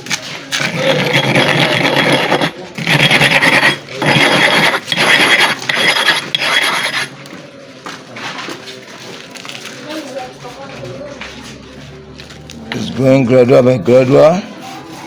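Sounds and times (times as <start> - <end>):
stone scraping on abrasive surface: 0.0 - 7.2.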